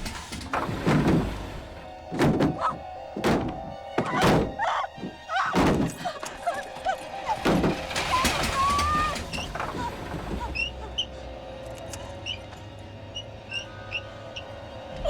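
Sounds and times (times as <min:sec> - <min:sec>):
heavy thuds: 0:00.0 - 0:06.4
tense horror score music: 0:00.0 - 0:15.0.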